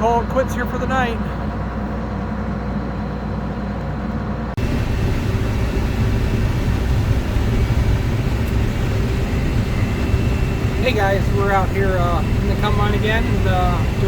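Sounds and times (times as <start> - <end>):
combine harvester running: 0.0 - 14.0
faint high whine: 4.6 - 14.0.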